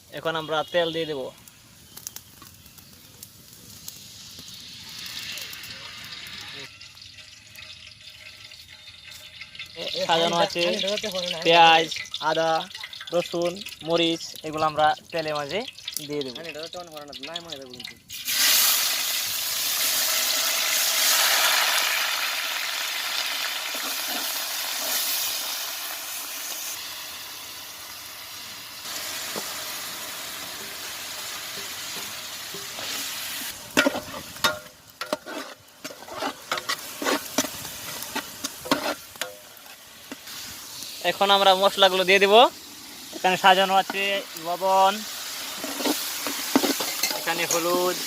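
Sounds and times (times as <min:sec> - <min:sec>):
vegetables sizzling in hot oil: 0:00.0 - 0:48.0
stirring knocks and scrapes in pot: 0:31.5 - 0:40.4, 0:43.1 - 0:44.2, 0:45.4 - 0:48.0.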